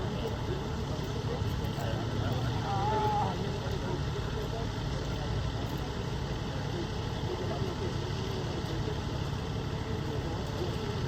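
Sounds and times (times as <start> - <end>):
faint distant voices: 0.0 - 11.0
street noise: 0.0 - 11.0
vehicle engine idling: 0.0 - 11.0.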